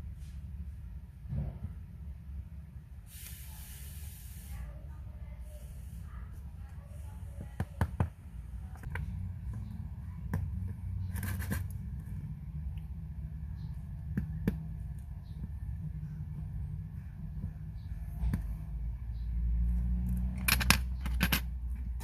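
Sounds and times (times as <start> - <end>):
steady low hum: 0.0 - 22.0
short hisses of spray: 3.1 - 4.7.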